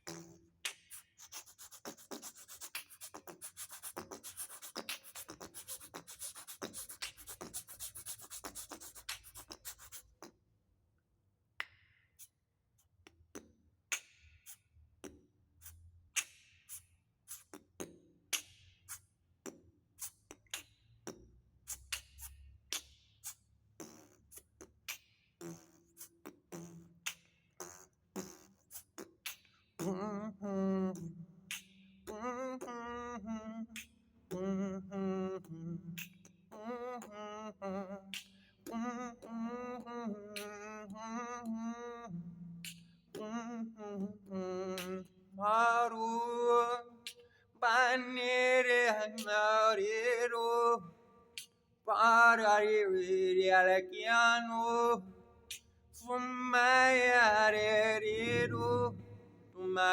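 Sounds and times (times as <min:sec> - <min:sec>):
beatboxing mouth percussion: 0:00.0 - 0:10.5, 0:11.6 - 0:59.9
person singing a note: 0:57.5 - 0:59.4.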